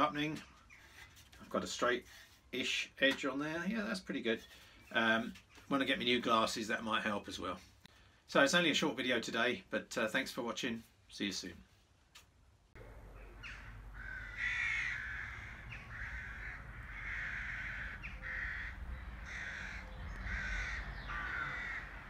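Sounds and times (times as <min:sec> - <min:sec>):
bird harsh calls: 0:12.9 - 0:22.0.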